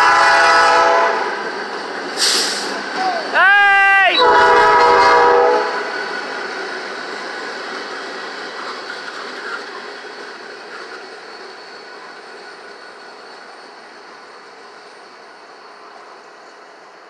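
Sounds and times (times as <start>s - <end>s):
freight train rolling past: 0.0s - 17.0s.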